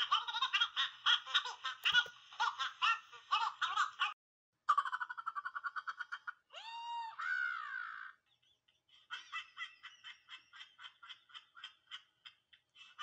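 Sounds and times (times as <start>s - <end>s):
rising and falling squawk: 6.6s - 8.3s.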